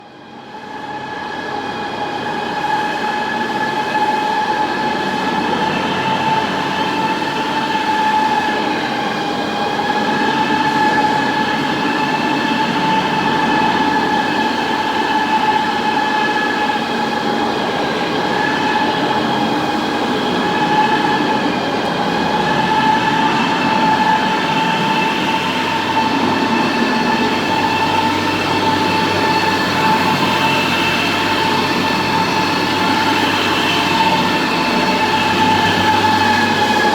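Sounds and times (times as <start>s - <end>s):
floor grinder grinding concrete: 4.6s - 36.9s.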